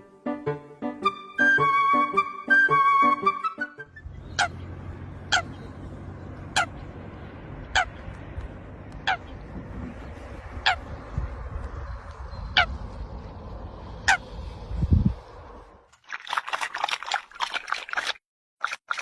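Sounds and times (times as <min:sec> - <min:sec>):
low rumble: 0:03.9 - 0:15.9.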